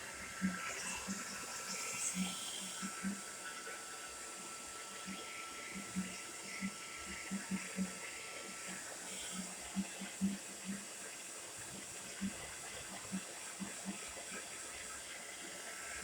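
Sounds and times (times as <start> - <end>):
hair dryer running: 0.0 - 9.7.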